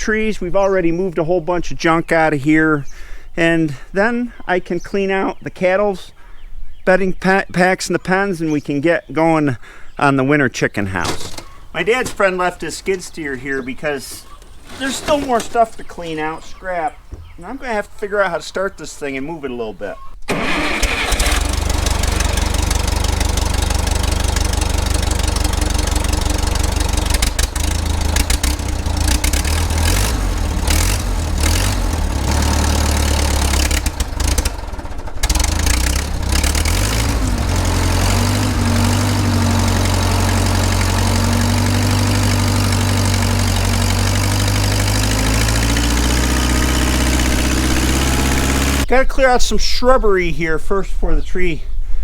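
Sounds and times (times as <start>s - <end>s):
skid steer engine running: 11.0s - 18.0s, 20.3s - 48.9s.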